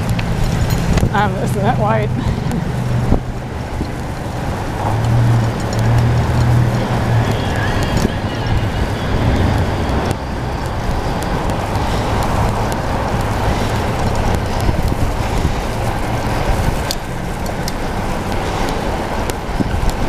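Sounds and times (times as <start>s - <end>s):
wind rush on microphone: 0.0s - 20.0s.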